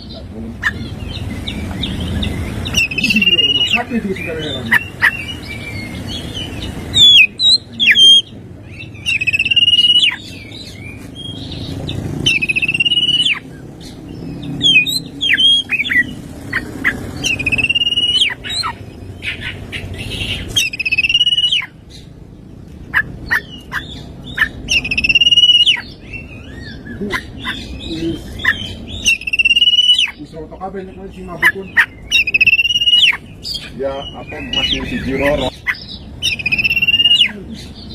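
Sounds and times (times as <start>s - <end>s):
bird singing buzzy trills: 0.0s - 37.9s
sharp downward bird whistles: 9.1s - 10.2s, 12.3s - 13.4s, 17.3s - 18.4s, 20.6s - 21.7s, 24.7s - 25.8s, 29.1s - 30.2s, 32.2s - 33.2s, 36.3s - 37.3s.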